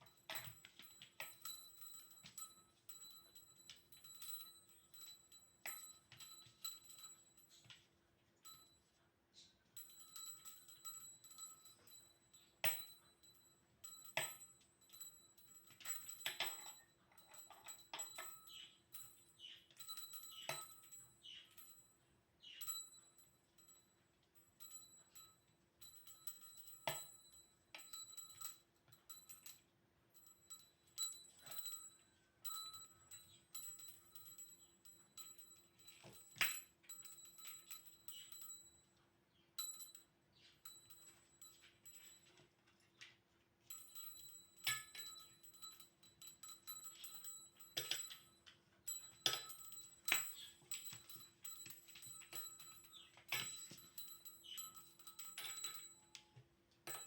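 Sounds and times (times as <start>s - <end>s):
small bell jingling: 0.0s - 57.0s.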